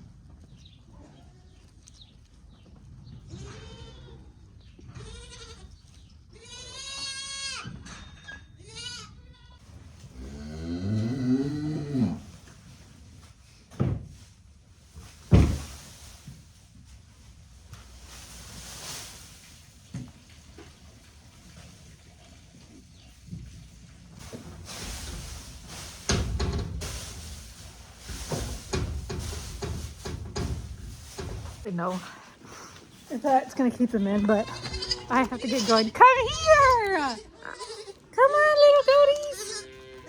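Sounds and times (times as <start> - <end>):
young goats bleating: 3.3 - 4.3, 4.9 - 7.7, 8.6 - 9.6, 34.0 - 40.0.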